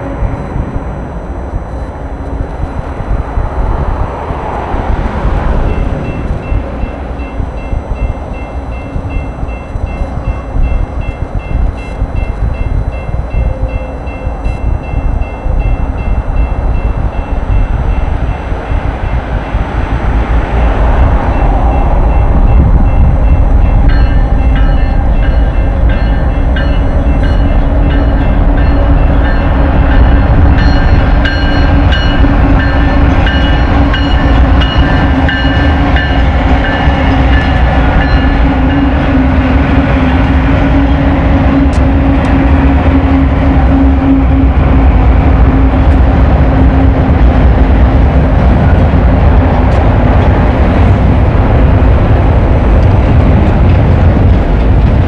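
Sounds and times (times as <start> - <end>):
freight train rumbling: 0.0 - 55.0
crossing warning bell: 5.6 - 19.6, 20.4 - 47.8.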